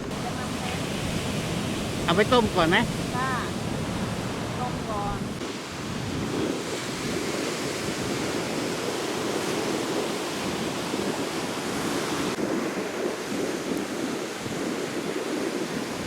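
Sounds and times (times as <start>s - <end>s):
waves washing onto beach: 0.0s - 16.0s
wind on microphone: 0.0s - 16.0s.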